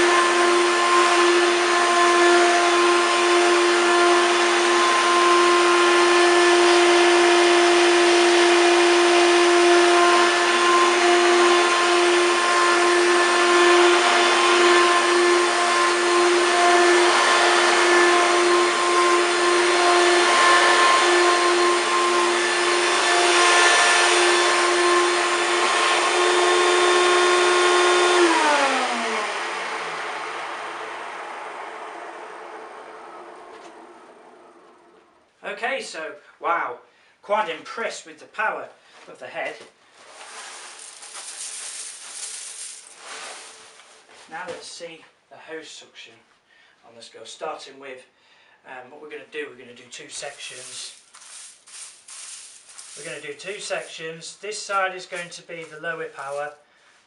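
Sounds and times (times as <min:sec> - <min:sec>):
vacuum cleaner motor whine: 0:00.0 - 0:35.2, 0:40.1 - 0:43.8, 0:50.3 - 0:53.9.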